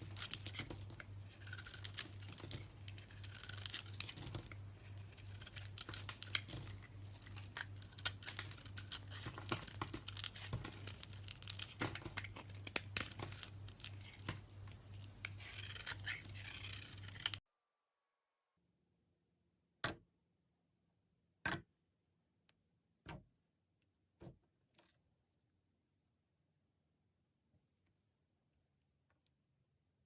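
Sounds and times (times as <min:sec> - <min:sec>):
crisp crackling and tearing: 0:00.0 - 0:17.4.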